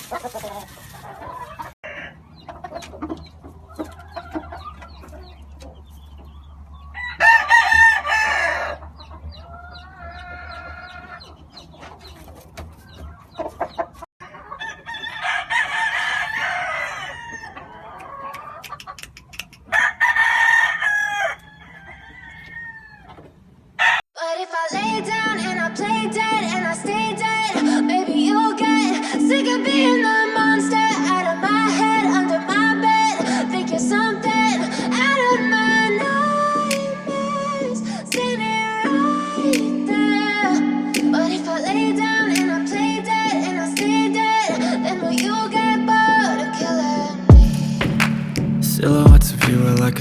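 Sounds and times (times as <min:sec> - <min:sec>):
roosters crowing: 0:00.0 - 0:02.4, 0:06.8 - 0:11.4, 0:13.4 - 0:18.6, 0:19.7 - 0:24.0
hens clucking: 0:00.0 - 0:20.3.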